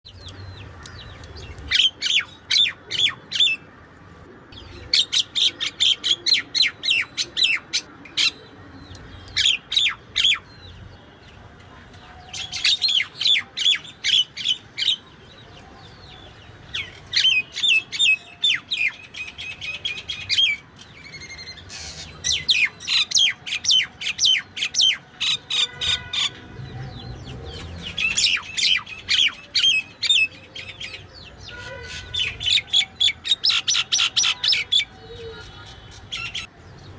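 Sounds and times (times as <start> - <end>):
small birds chirping: 0.0 - 3.8.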